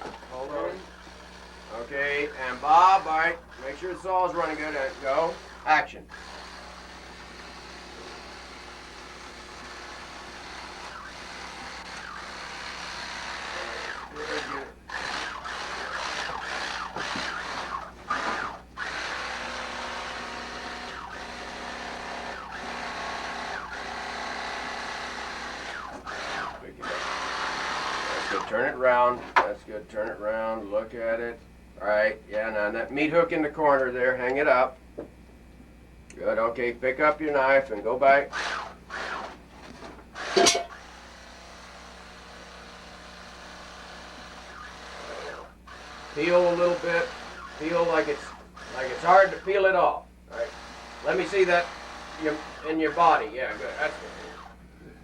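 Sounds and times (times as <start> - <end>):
chainsaw revving: 0.0 - 28.6, 38.3 - 39.4, 42.4 - 49.7, 50.3 - 54.6.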